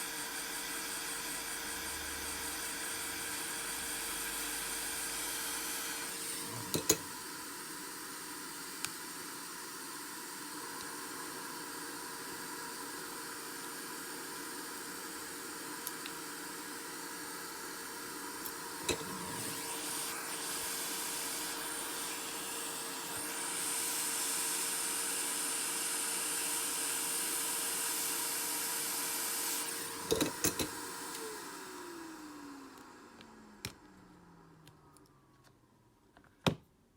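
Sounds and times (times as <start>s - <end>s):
fan winding down: 0.0s - 7.2s
hot air gun blowing: 18.5s - 26.8s.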